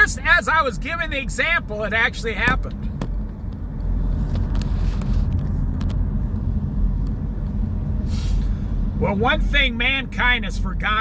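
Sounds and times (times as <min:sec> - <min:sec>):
vehicle engine and road noise: 0:00.0 - 0:11.0
brief hiss: 0:08.0 - 0:08.7.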